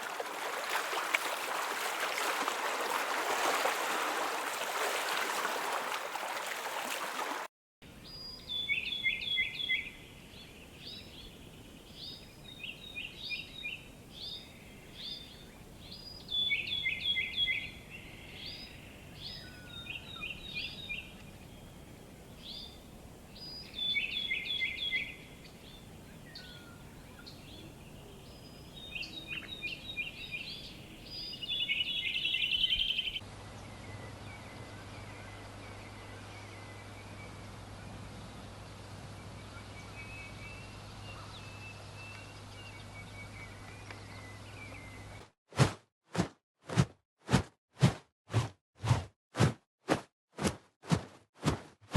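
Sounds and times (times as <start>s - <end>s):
rushing water noise: 0.0s - 7.5s
songbird singing: 7.9s - 45.3s.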